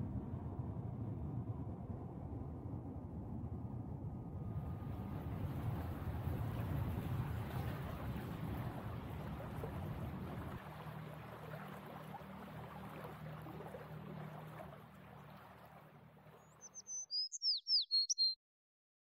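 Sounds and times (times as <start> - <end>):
wind: 0.0 - 18.4
boat engine humming: 4.4 - 17.0
water noise: 4.4 - 18.1
songbird singing: 16.3 - 18.4.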